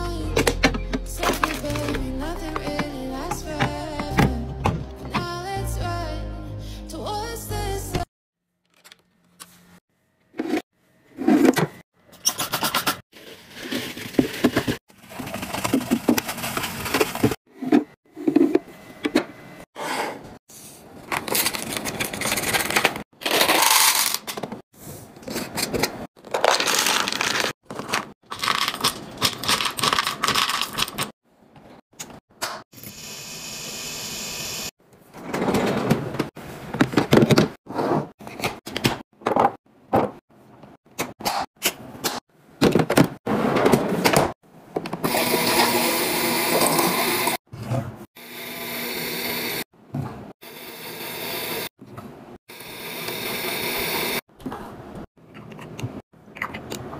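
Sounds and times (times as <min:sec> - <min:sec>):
packages rustling: 0:26.2 - 0:31.1.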